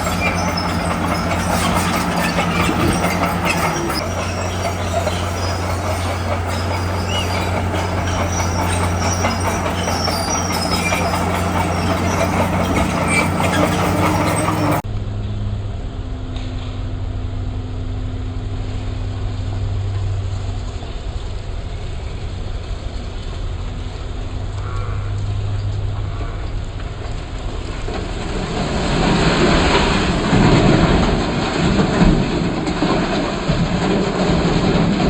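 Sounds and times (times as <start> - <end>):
clatter of steel tracks: 0.0 - 14.8, 20.0 - 35.0
rock being pushed: 0.0 - 14.8
bulldozer diesel engine: 0.0 - 14.9, 17.6 - 35.0.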